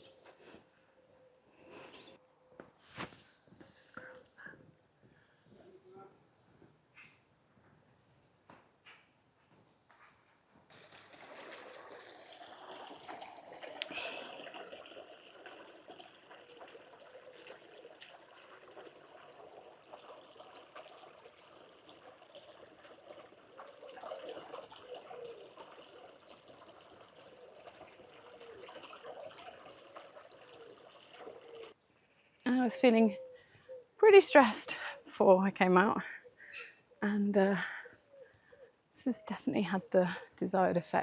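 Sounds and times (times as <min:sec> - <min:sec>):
water trickling: 0:10.7 - 0:31.8.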